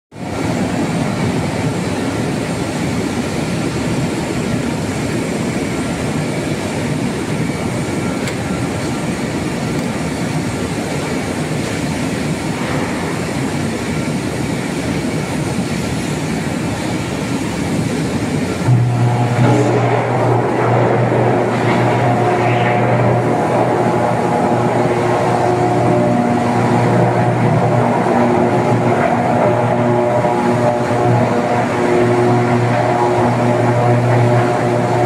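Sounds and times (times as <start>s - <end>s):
electric arc crackling: 18.5s - 35.0s.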